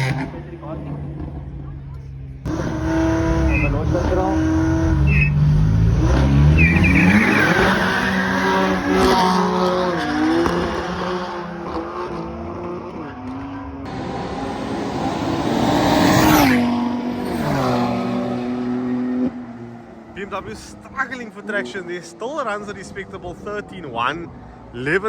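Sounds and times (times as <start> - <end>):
racing car engines revving: 0.0 - 25.0
car passing by loudly: 13.8 - 20.2.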